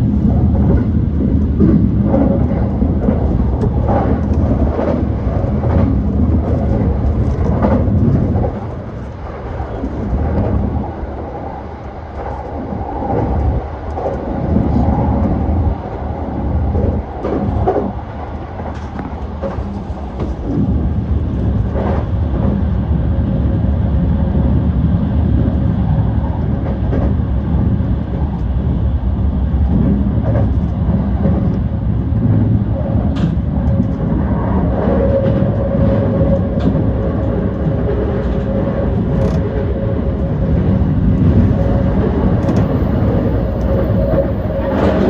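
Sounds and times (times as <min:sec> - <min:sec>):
train wheels rumbling on rail: 0:00.0 - 0:45.0
steady whine: 0:36.0 - 0:45.0.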